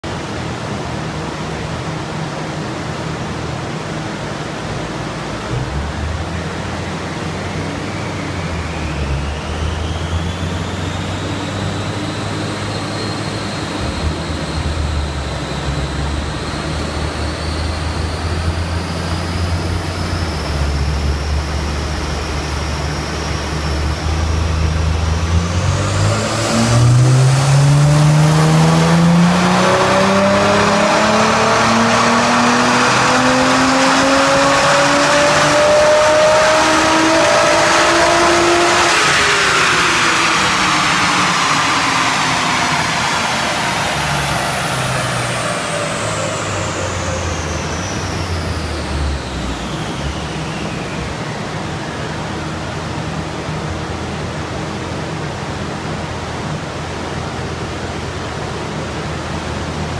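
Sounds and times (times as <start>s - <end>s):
engine revving under load: 0.0s - 59.9s
engine whine rising: 0.0s - 59.9s
steady rush of noise: 0.0s - 59.9s.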